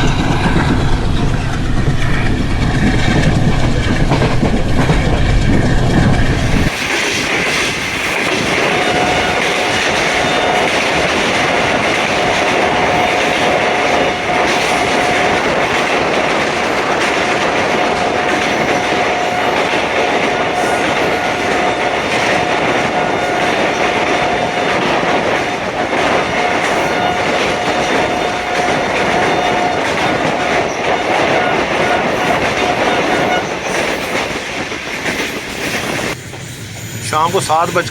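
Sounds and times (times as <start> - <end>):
train wheel and rail noise: 0.0 - 37.9.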